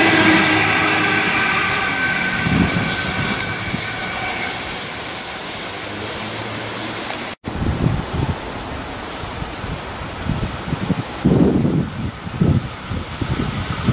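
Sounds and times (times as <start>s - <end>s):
electric train rumbling: 0.0s - 13.9s
high train whine: 0.0s - 13.9s
wind on microphone: 2.2s - 3.9s, 7.4s - 13.9s.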